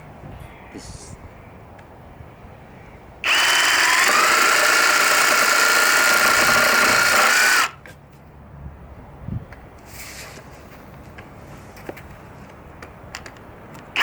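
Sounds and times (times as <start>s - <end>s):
reciprocating saw whining: 3.2s - 7.8s.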